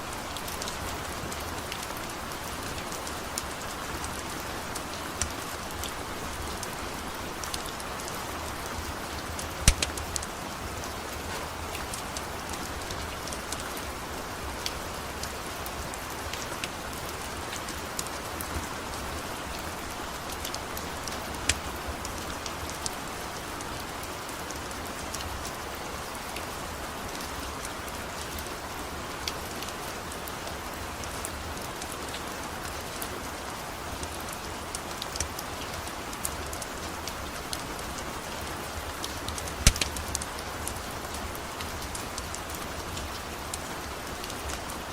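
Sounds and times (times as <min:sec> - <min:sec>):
steady rain: 0:00.0 - 0:44.9
wood fire crackling and popping: 0:09.3 - 0:12.3, 0:20.2 - 0:23.0, 0:39.3 - 0:40.4.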